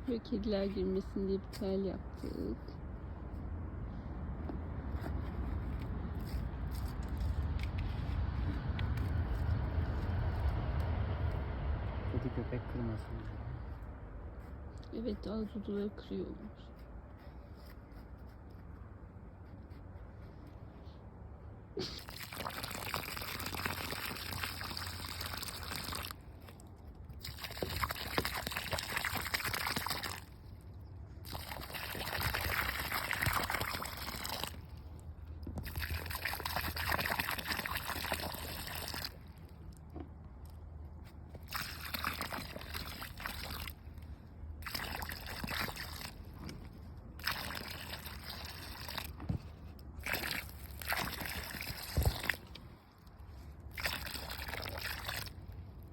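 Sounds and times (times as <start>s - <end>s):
water pouring onto soil: 21.8s - 39.8s, 41.4s - 46.4s, 47.1s - 55.9s.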